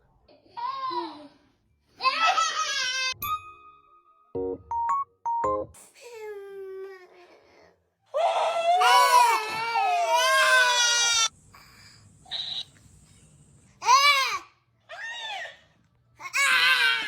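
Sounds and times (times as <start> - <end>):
young child crying and wailing: 8.1 - 11.3.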